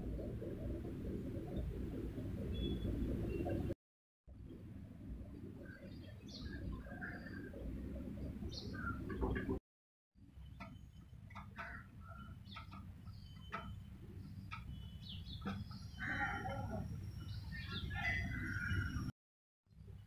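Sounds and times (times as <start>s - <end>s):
low background rumble: 0.0s - 9.6s
birds chirping and calling: 5.6s - 7.6s, 8.2s - 9.6s, 10.5s - 19.1s.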